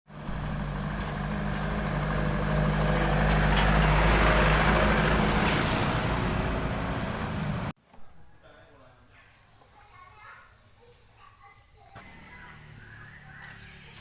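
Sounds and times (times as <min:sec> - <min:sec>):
vehicle engine running: 0:00.1 - 0:07.7, 0:12.0 - 0:14.0.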